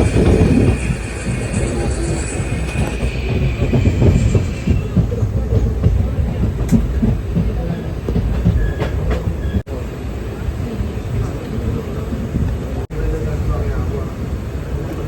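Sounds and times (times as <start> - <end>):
wheel squeal: 0.0 - 5.7, 8.4 - 9.6
train rumbling on rails: 0.0 - 15.0.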